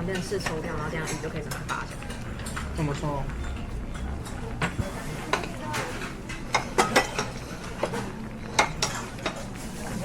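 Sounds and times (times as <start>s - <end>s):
cutlery clinking on plates: 3.5s - 10.0s.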